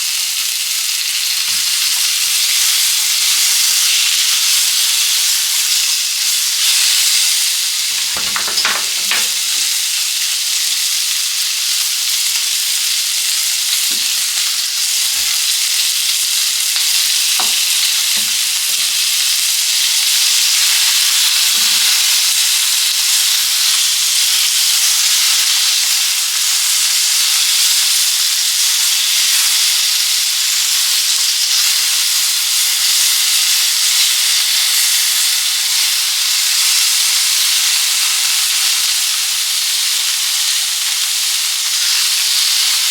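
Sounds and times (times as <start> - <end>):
food sizzling in a pan: 0.0 - 42.9
knocks from stirring in a pan: 8.0 - 9.7, 17.4 - 18.5.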